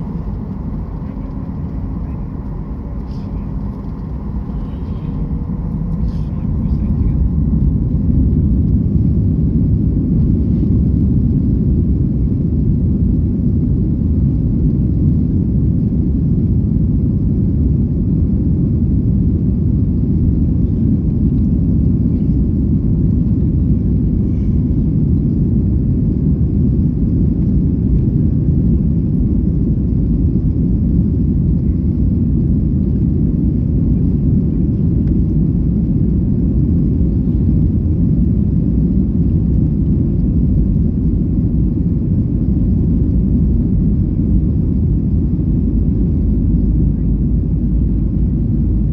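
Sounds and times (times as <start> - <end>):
jet engines and rushing air: 0.0 - 10.2.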